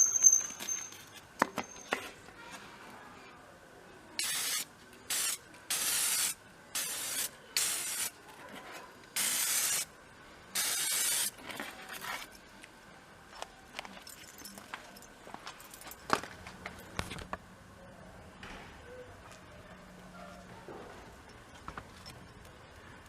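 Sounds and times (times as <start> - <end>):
spray paint can hissing: 4.2 - 8.2, 9.2 - 9.9, 10.6 - 11.4.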